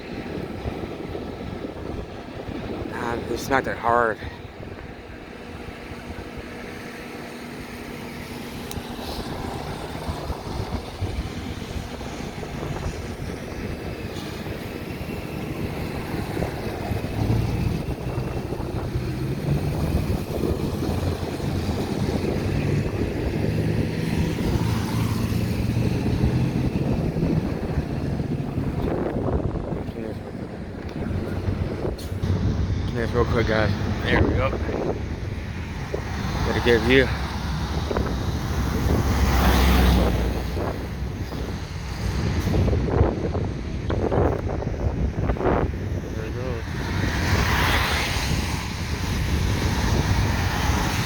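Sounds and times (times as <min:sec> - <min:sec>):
wind rumbling on microphone: 0:00.0 - 0:51.0
vehicle engine running: 0:02.6 - 0:45.8.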